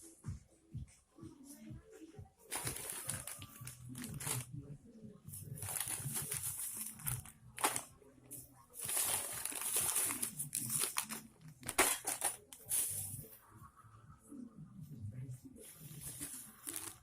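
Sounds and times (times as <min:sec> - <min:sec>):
insulation crinkling and tearing: 0:02.5 - 0:04.5, 0:05.4 - 0:07.9, 0:08.8 - 0:13.1, 0:16.0 - 0:17.0.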